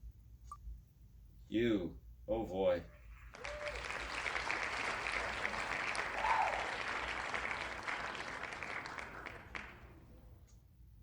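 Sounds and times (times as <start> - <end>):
applause: 3.0 - 10.1.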